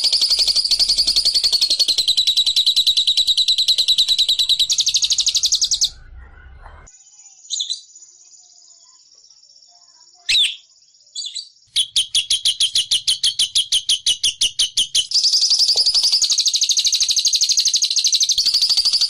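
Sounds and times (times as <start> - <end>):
bird chattering trill: 0.0 - 6.2.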